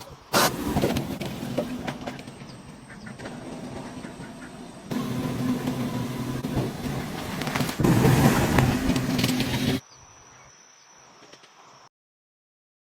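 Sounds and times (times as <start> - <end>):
car engine running: 4.9 - 9.8.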